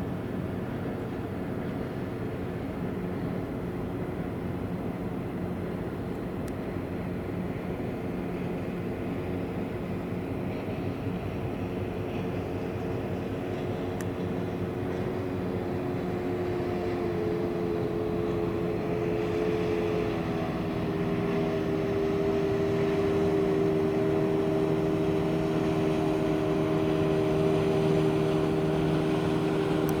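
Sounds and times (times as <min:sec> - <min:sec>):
ferry engines droning: 0:11.6 - 0:30.0.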